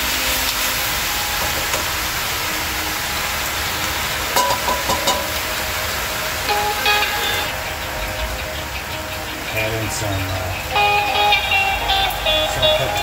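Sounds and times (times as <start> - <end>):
food frying in oil: 0.0 - 7.8
heavy rain hiss: 0.0 - 13.0.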